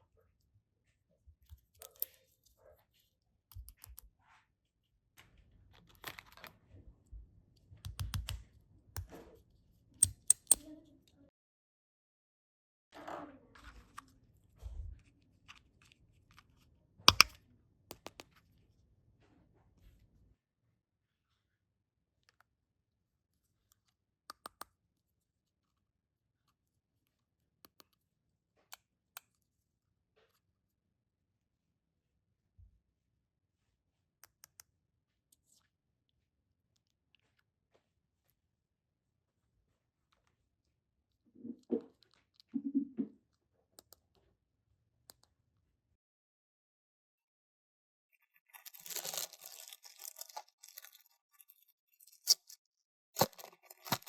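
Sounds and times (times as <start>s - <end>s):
plastic toy pieces clicking: 10.0s - 10.6s, 17.1s - 17.3s.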